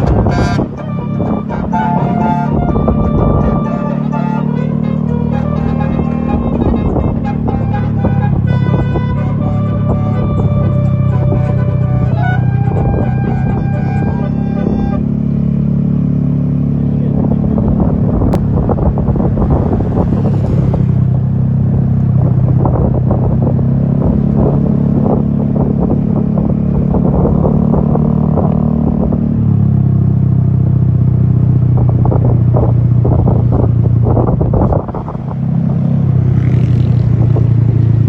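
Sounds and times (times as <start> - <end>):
multi-note bus horn: 0.0 - 15.5
bus engine running: 0.0 - 38.0.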